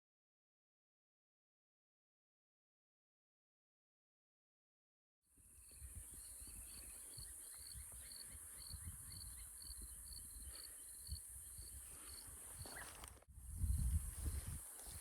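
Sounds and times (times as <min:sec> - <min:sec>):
cicadas droning: 0:05.4 - 0:15.0.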